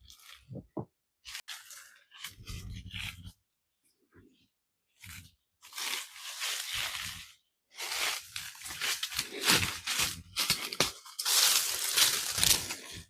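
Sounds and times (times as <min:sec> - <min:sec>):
dry leaves rustling and crunching: 0:05.6 - 0:13.0.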